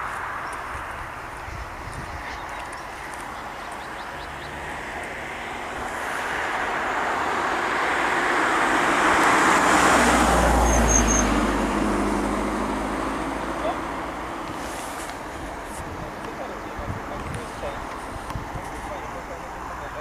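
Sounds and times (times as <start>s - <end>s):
train passing rushing noise: 4.5s - 16.1s.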